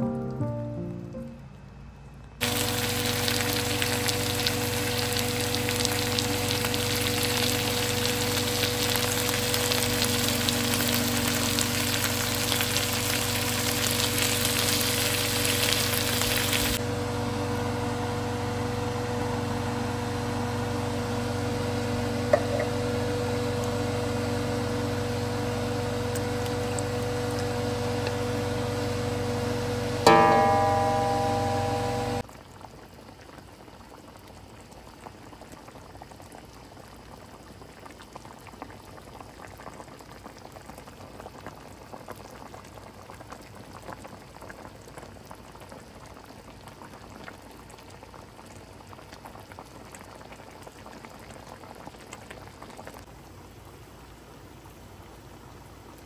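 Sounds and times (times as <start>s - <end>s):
chicken sizzling in a wok: 2.4s - 37.1s
steady hum: 22.0s - 32.2s.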